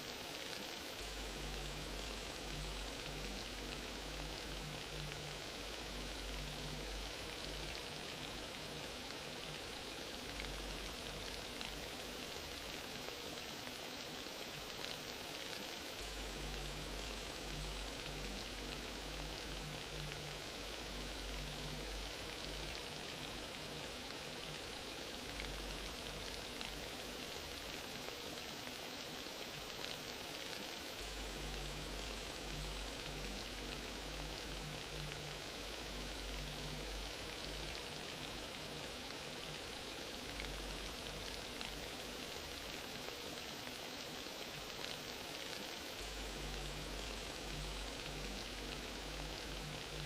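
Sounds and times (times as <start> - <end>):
fire crackling: 0.0 - 50.0.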